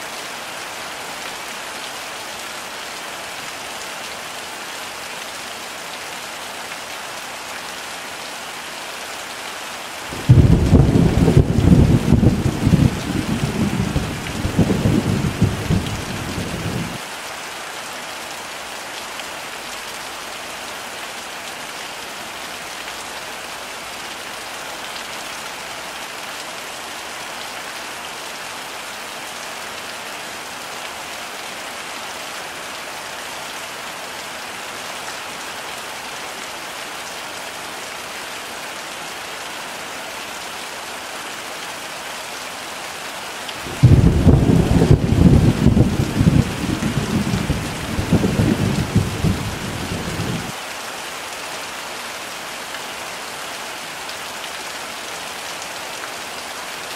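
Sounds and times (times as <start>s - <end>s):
heavy rain falling: 0.0s - 56.9s
thunder rumbling: 10.1s - 17.0s, 43.6s - 50.5s.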